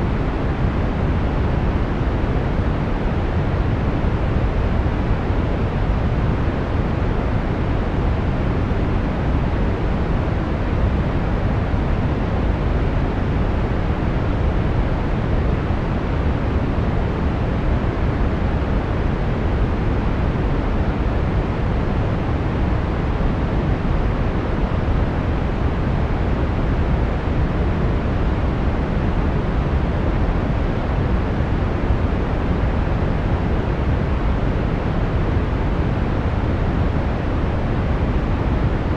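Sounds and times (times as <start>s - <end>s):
deep rushing brown noise: 0.0s - 38.9s.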